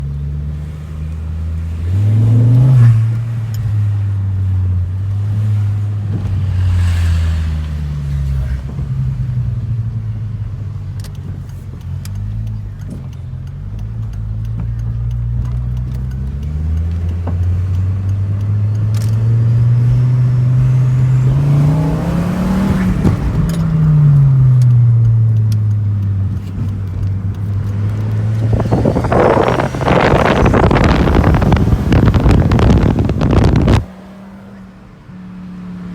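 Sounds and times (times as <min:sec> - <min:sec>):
turbocharged engine revving: 0:00.0 - 0:09.3, 0:14.4 - 0:35.5
turbo flutter: 0:28.3 - 0:33.8.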